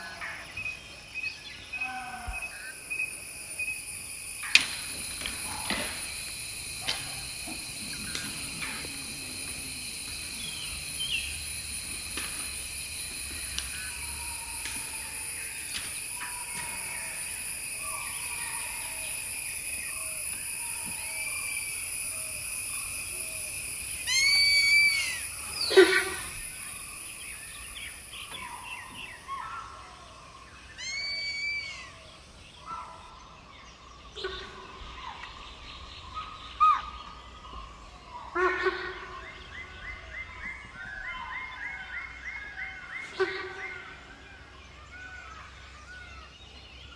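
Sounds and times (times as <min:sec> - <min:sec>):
birds calling: 0:00.0 - 0:46.9
high insect drone: 0:00.0 - 0:46.9
short arching bird calls: 0:20.7 - 0:29.6, 0:30.8 - 0:32.0
sharp loud bird call: 0:24.1 - 0:26.4, 0:30.8 - 0:32.0.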